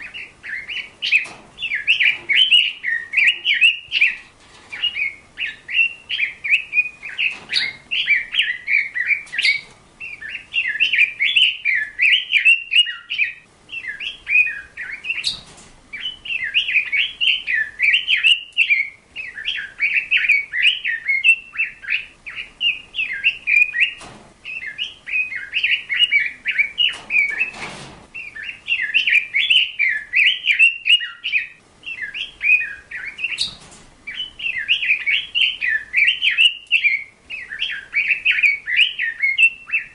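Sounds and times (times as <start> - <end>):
bird chirping and twittering: 0.0 - 39.9.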